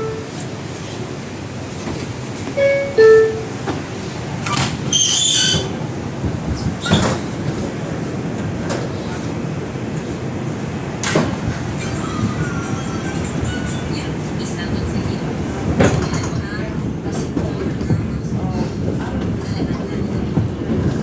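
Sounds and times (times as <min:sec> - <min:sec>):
subway car low rumble: 0:00.0 - 0:21.0
descending two-tone door chime: 0:02.6 - 0:03.6.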